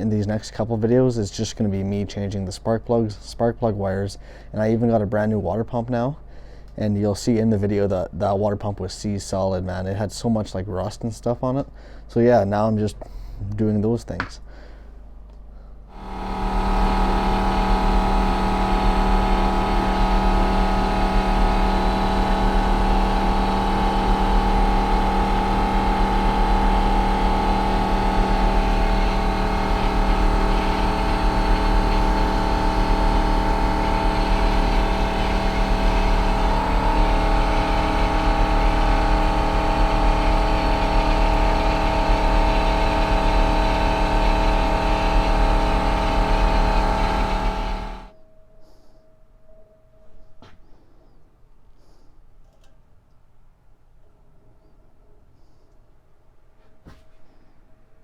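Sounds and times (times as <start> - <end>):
truck engine running steadily: 16.0 - 48.1.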